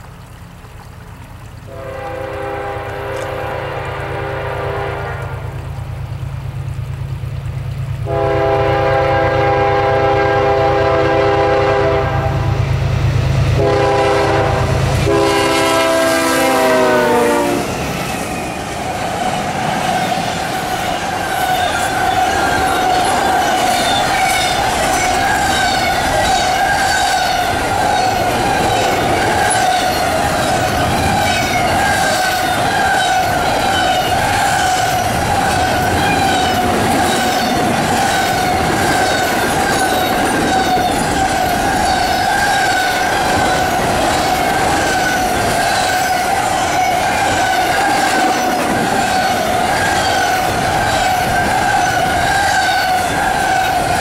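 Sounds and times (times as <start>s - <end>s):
diesel locomotives rumbling: 0.0s - 54.0s
train air horn blasts: 1.7s - 5.6s, 8.0s - 12.6s, 13.5s - 17.8s
wheels clattering over rail joints: 17.7s - 54.0s.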